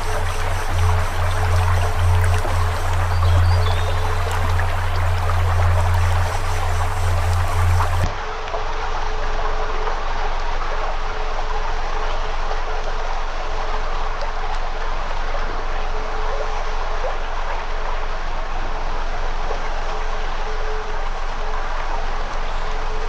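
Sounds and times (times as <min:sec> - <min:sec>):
campfire crackling: 0:00.0 - 0:08.1
faint steady hum: 0:00.0 - 0:08.1.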